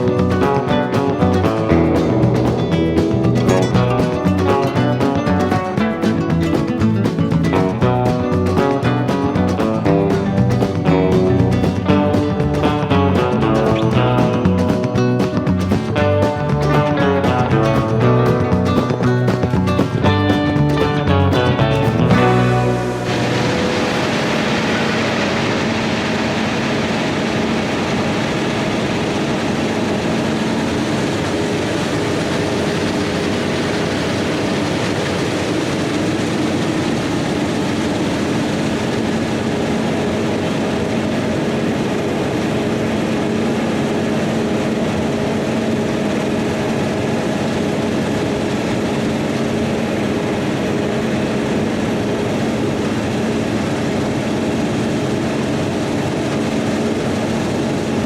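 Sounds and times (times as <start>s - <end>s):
diesel farm machinery engine running: 0.0s - 58.0s.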